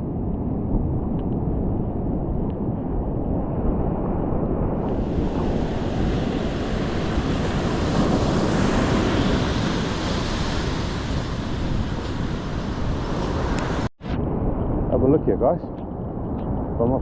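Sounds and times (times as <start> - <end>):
wind rumbling on microphone: 0.0 - 17.0
ocean surf breaking: 4.6 - 13.9.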